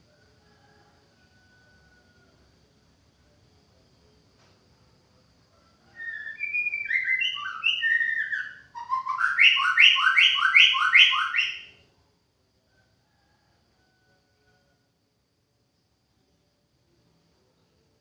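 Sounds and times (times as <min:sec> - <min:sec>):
bird singing whistled notes: 0:05.9 - 0:11.8.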